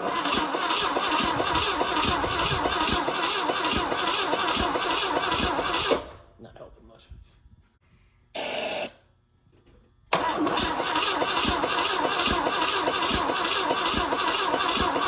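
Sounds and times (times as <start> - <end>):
starter cranking engine: 0.0 - 6.2, 10.1 - 15.0.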